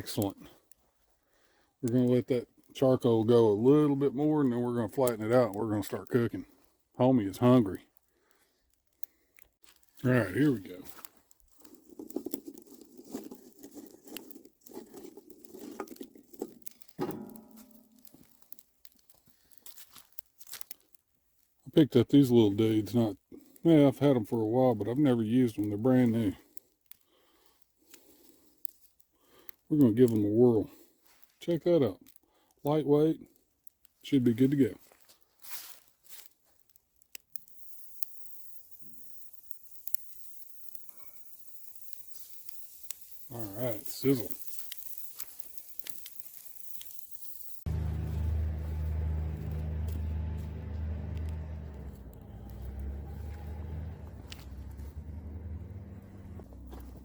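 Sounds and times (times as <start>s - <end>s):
sausages sizzling on a grill: 7.0s - 51.0s
handling rustling and clatter: 10.7s - 21.6s, 34.9s - 48.3s.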